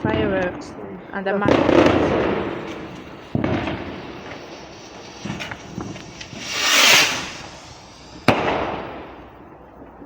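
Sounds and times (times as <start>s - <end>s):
fireworks popping: 1.5s - 9.2s
sharp firework bang: 1.8s - 9.1s
fireworks hissing: 1.8s - 9.4s.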